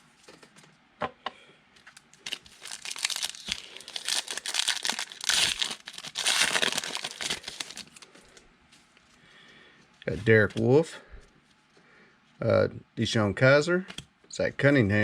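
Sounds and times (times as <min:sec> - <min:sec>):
foil wrapper crinkling and tearing: 0:01.9 - 0:08.2.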